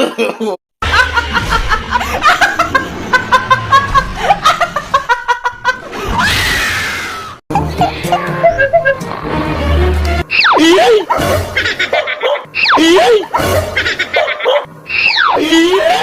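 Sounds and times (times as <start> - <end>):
bursts of laughter: 0.0 - 6.2.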